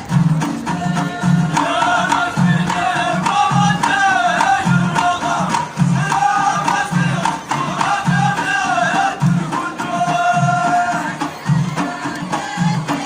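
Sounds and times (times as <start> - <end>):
deep drum beats: 0.0 - 13.0
sharp clicking percussion: 0.0 - 13.0.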